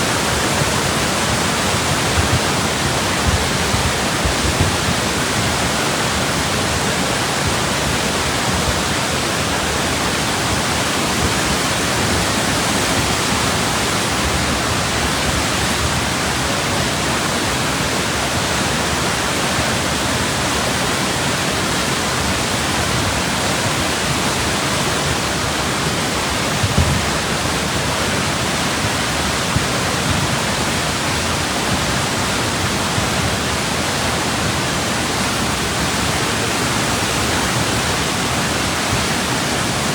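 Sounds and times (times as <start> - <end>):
floodwater rushing: 0.0 - 39.9
low thump: 26.6 - 27.2.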